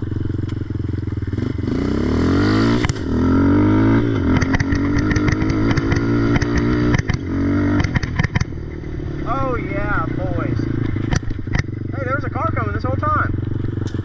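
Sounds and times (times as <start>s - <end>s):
atv engine accelerating: 0.0s - 14.0s
sharp engine knocks: 10.8s - 11.8s.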